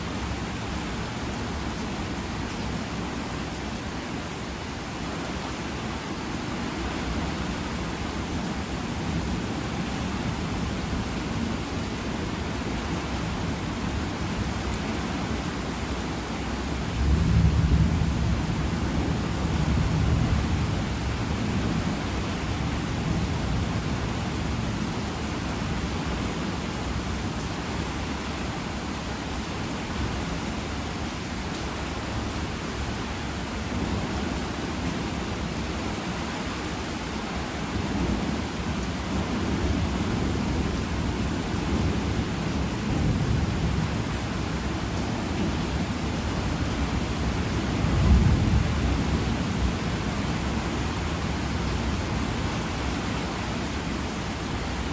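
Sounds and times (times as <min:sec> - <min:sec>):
heavy rain falling: 0:00.0 - 0:54.9
thunder rolling: 0:47.8 - 0:49.8.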